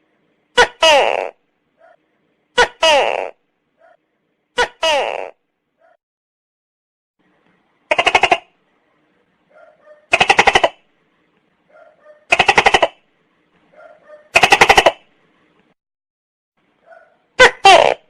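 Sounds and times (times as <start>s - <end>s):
gecko calling: 9.6s - 10.8s.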